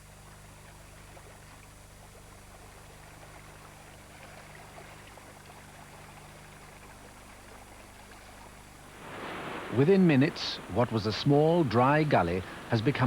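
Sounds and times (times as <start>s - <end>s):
low steady hum: 0.0s - 13.0s
water rushing: 7.9s - 13.0s.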